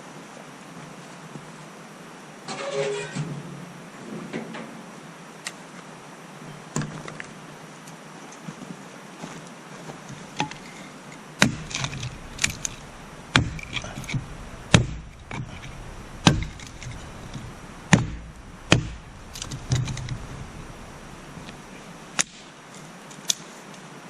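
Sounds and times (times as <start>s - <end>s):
axe chopping wood: 11.4s - 20.8s.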